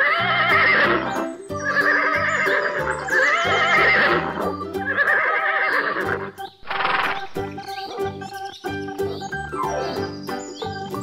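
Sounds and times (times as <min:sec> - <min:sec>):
horse whinnying: 0:00.0 - 0:07.4
cheerful background music: 0:00.0 - 0:11.0.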